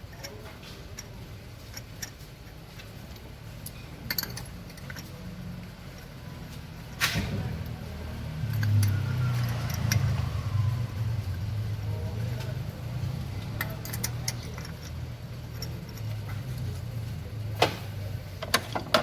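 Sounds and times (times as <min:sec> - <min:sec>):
metal tools clicking and clinking: 0:00.0 - 0:11.5, 0:12.2 - 0:17.7, 0:18.4 - 0:19.0
low engine rumble: 0:00.0 - 0:19.0.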